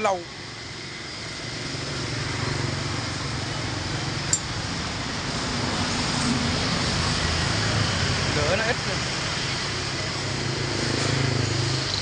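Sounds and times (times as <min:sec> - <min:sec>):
small clink: 0:04.3 - 0:04.5.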